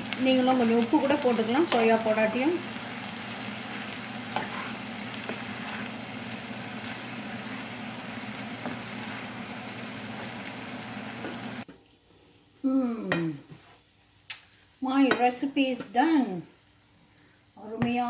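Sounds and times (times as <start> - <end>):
stir-fry sizzling in a pan: 0.0 - 18.0
spatula scraping: 3.6 - 6.1.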